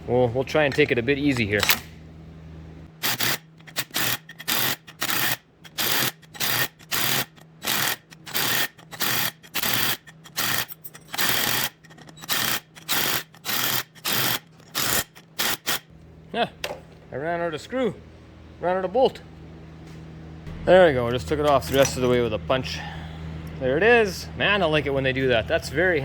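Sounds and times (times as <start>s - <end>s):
cordless driver trigger pulses: 3.0s - 15.9s.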